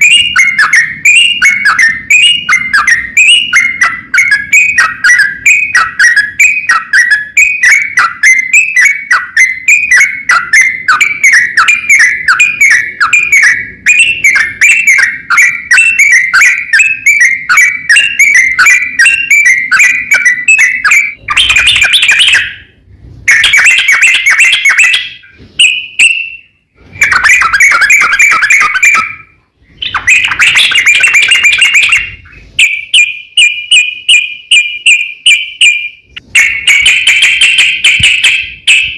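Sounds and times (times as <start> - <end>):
bird chirping and trilling: 0.0 - 38.9.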